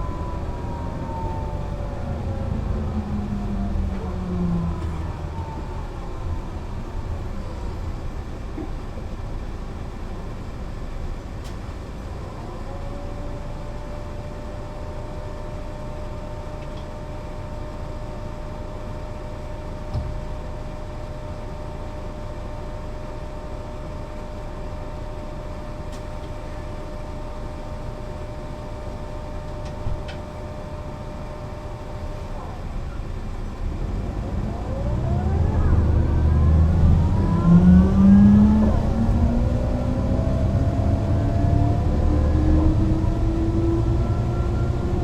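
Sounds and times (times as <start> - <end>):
whine changing pitch: 0.0 - 7.4, 33.8 - 45.0
bus engine and road rumble: 0.0 - 45.0.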